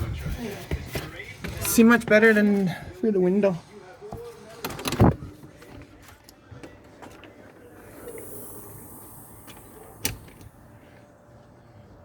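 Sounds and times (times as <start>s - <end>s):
faint hiss: 7.4s - 11.2s.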